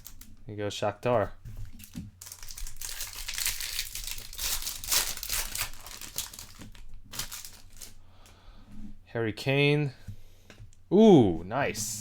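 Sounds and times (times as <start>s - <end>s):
foil wrapper tearing and crinkling: 0.0s - 0.3s, 1.7s - 8.0s.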